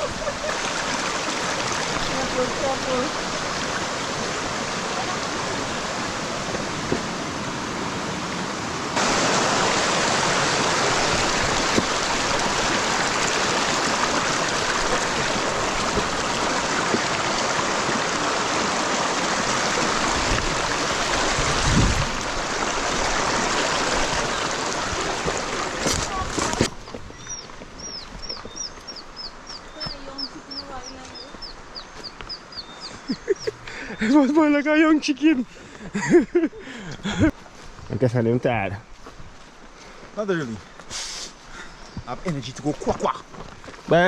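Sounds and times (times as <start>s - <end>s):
waterfall and stream rushing: 0.0s - 44.0s.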